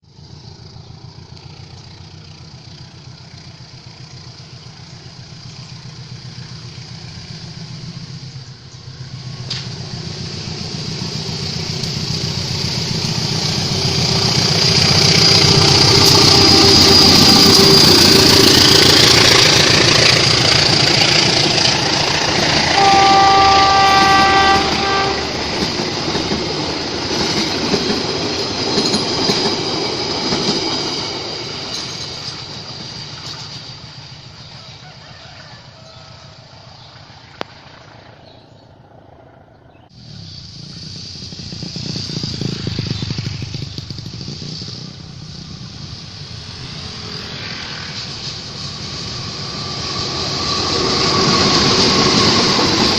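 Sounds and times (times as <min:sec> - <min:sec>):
train passing: 0:00.0 - 0:52.9
train horn blast: 0:15.2 - 0:18.8, 0:22.6 - 0:25.7.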